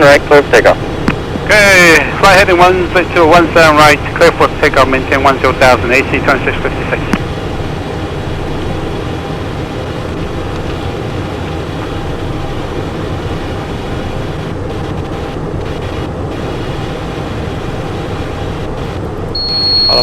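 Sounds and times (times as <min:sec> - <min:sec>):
airflow rush in cockpit: 0:00.0 - 0:20.0
turbofan engine noise: 0:00.0 - 0:20.0.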